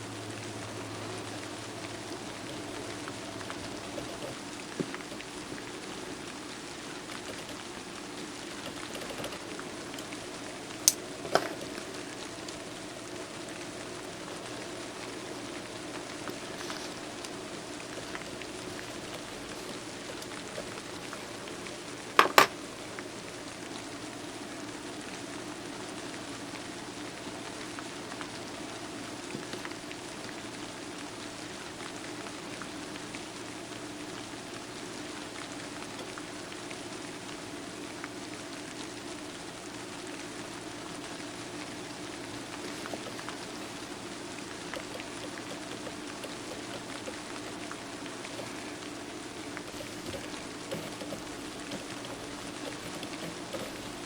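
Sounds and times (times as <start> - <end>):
steady rain hiss: 0.0 - 54.0
sharp clicks: 7.1 - 10.2, 44.7 - 47.2, 49.7 - 54.0.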